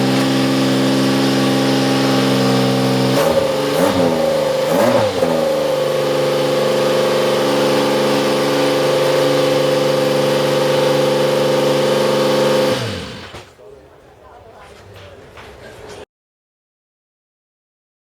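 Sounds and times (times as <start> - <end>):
race car engine idling and revving: 0.0 - 13.4.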